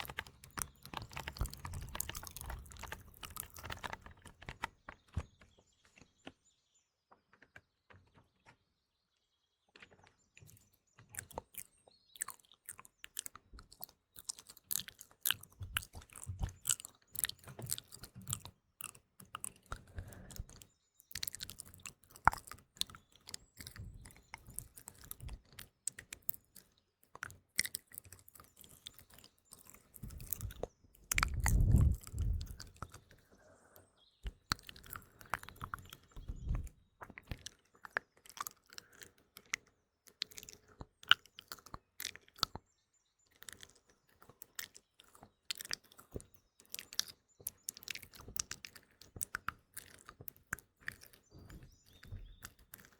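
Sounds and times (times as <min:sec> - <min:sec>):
wet mouth clicks and smacks: 0:00.0 - 0:04.4, 0:10.5 - 0:33.3, 0:34.2 - 0:42.6, 0:43.4 - 0:52.9
faint birdsong: 0:00.0 - 0:52.9.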